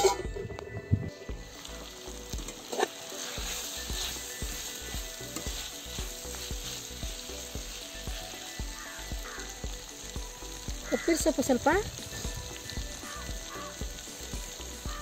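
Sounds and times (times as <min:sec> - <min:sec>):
metal spatula stirring: 0:00.0 - 0:00.2
vegetables sizzling in a pan: 0:01.3 - 0:15.0.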